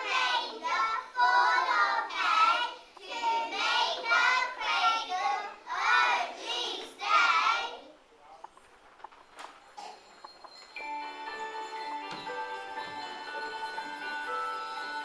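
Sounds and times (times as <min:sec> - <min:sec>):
children singing: 0:00.0 - 0:07.7.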